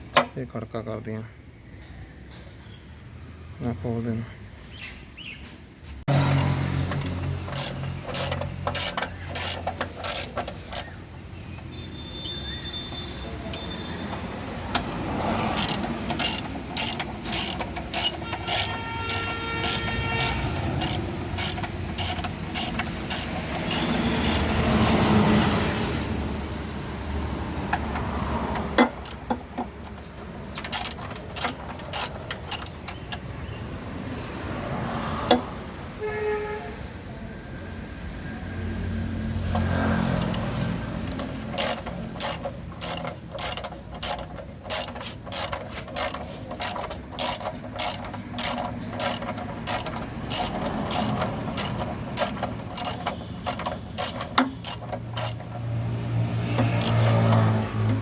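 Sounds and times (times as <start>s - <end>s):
ratchet wrench clicking: 6.1s - 11.0s, 12.9s - 26.2s, 27.4s - 33.3s, 39.4s - 58.0s.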